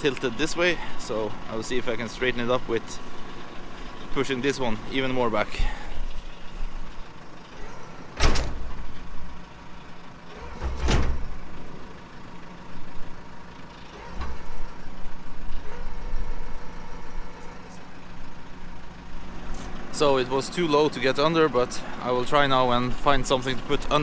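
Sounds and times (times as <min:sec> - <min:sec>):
tractor engine running: 0:00.0 - 0:24.0
metal hitch clunks: 0:02.4 - 0:12.0, 0:13.5 - 0:18.0.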